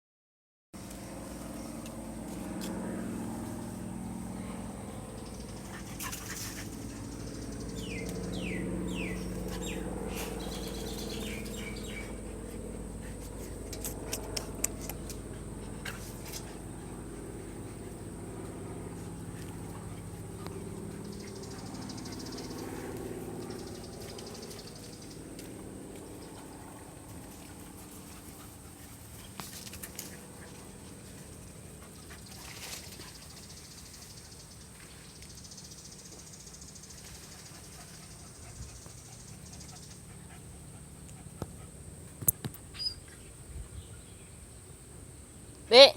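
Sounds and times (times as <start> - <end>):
steady background hum: 0.8 - 45.9.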